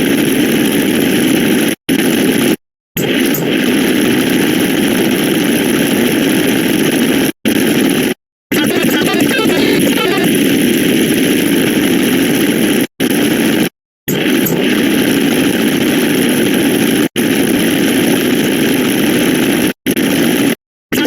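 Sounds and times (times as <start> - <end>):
harsh distorted noise: 8.5 - 11.1.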